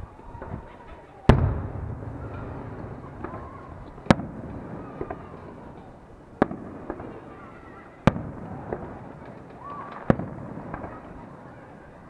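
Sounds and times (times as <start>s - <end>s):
fireworks bangs: 0.4s - 12.0s
small fireworks pops: 0.4s - 12.0s
rumbling echo: 1.3s - 5.7s.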